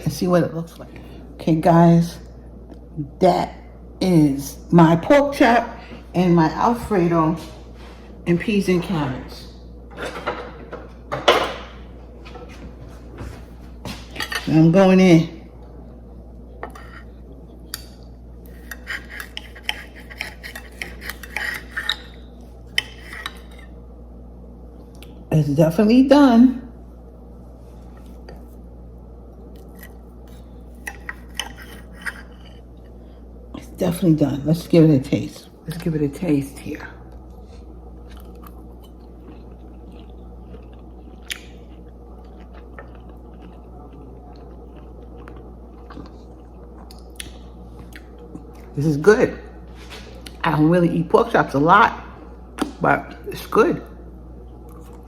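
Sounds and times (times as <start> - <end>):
steady low hum: 0.0 - 55.0
knife and fork scraping a plate: 16.6 - 17.1, 18.5 - 23.7, 29.7 - 32.6
person chewing crunchy food: 18.4 - 23.7, 29.4 - 33.0, 37.1 - 48.7, 54.6 - 55.0.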